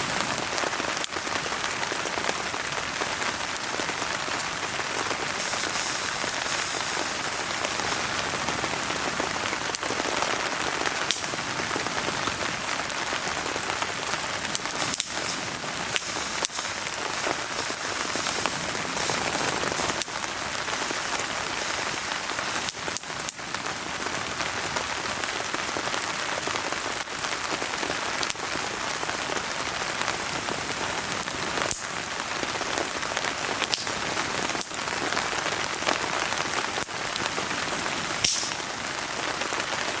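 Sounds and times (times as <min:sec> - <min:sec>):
rain falling: 0:00.0 - 0:40.0
wood fire crackling: 0:00.0 - 0:40.0
sharp pops: 0:14.4 - 0:21.8, 0:38.2 - 0:38.8.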